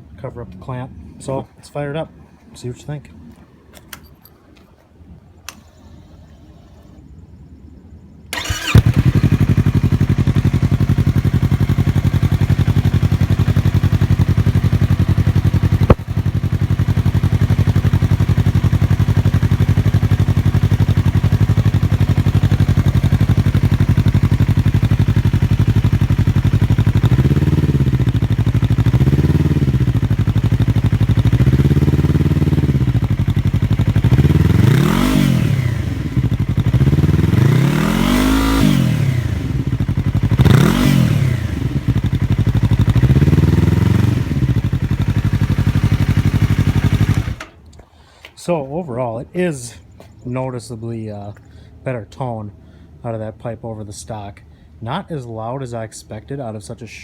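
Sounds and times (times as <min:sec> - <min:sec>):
motorcycle throttle blips: 0:03.3 - 0:07.2, 0:08.3 - 0:48.4
motorcycle engine idling: 0:08.3 - 0:47.6.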